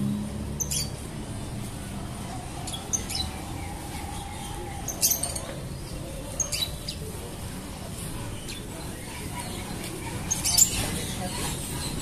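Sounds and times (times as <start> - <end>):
bus engine rumble: 0.0 - 6.1.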